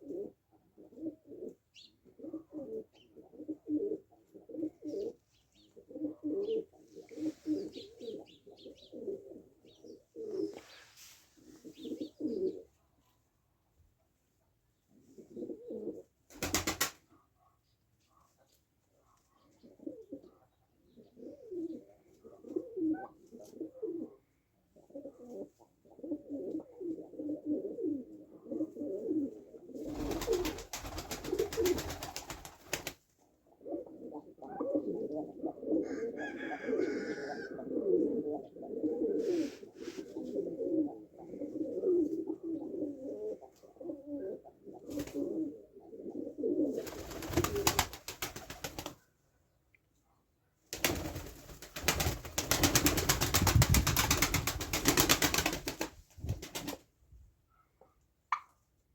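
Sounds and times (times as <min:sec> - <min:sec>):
pigeons cooing: 0:00.0 - 0:10.7, 0:11.4 - 0:12.8, 0:15.1 - 0:16.6, 0:19.4 - 0:49.0.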